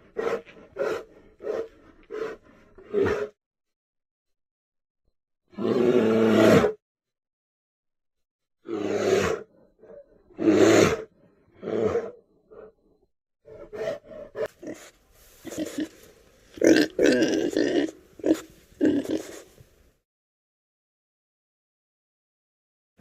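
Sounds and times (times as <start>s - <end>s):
bear growling: 0.0s - 3.4s, 8.6s - 12.8s, 13.5s - 16.0s
piglets grunting and squealing: 14.5s - 16.0s, 16.6s - 19.5s.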